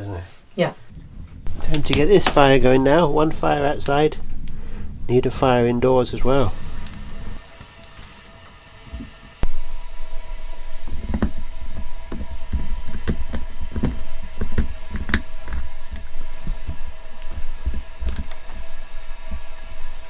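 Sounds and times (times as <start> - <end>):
fire crackling: 0.1 - 20.0
firewood knocking and thudding: 0.9 - 7.4, 10.8 - 20.0.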